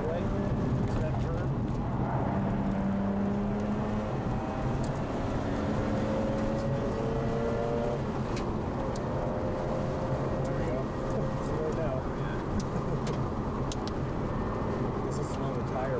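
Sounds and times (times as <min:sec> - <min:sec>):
road and wind noise: 0:00.0 - 0:15.9
light ticks: 0:12.6 - 0:14.0.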